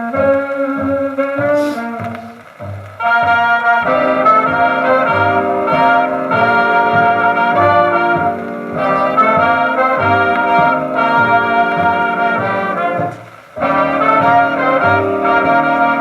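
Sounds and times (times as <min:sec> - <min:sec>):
jazz dance band playing: 0:00.0 - 0:16.0.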